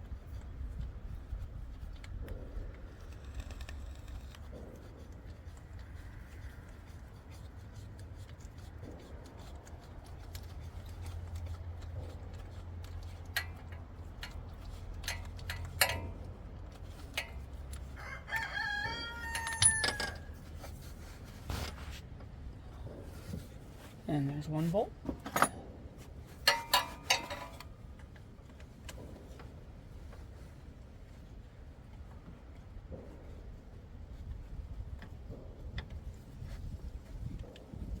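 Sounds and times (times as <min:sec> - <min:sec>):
hand tools clicking and tapping: 0:09.7 - 0:20.4, 0:26.4 - 0:29.1.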